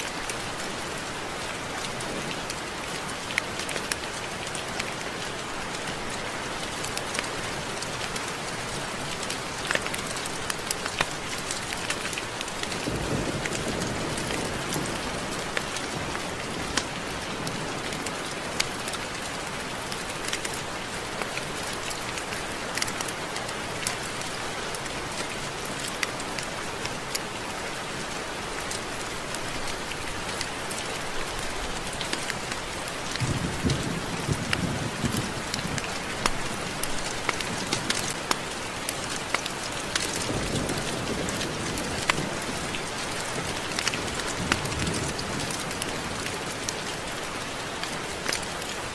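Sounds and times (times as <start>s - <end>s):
steady rain with ticking drops: 0.0s - 48.9s
low thunder rumble: 33.2s - 35.8s.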